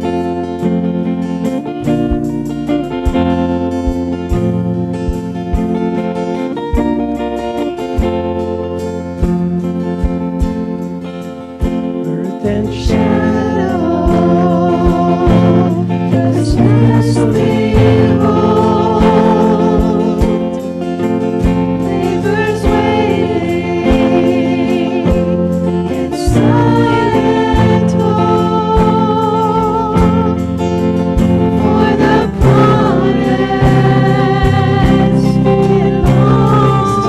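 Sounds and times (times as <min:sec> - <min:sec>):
guitar: 0:00.0 - 0:37.0
steady beat: 0:00.1 - 0:37.0
voices singing with vibrato: 0:12.0 - 0:37.0.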